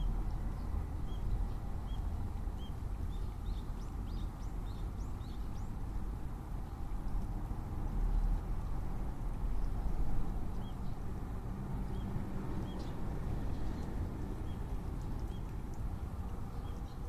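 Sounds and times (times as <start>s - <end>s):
faint sparrow chirps: 0.0s - 5.8s.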